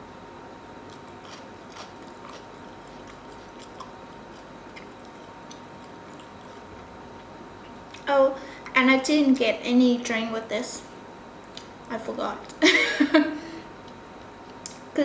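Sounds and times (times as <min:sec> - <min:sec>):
steady background hiss: 0:00.0 - 0:15.0
person chewing food: 0:00.8 - 0:08.1.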